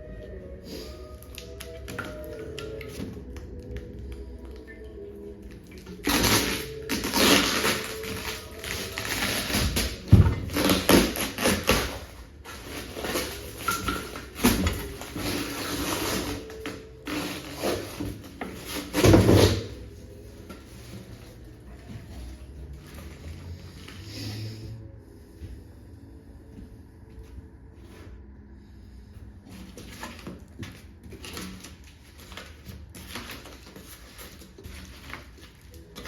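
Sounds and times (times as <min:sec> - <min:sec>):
packaging rustling and crinkling: 0:00.3 - 0:24.1, 0:29.5 - 0:36.0.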